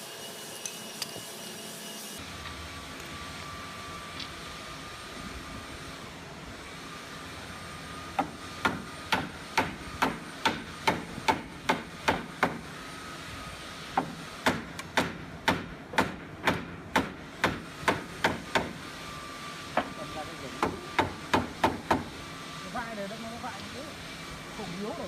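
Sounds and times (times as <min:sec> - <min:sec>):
hammer striking wood: 0:08.2 - 0:12.7, 0:13.9 - 0:18.8, 0:20.6 - 0:22.1.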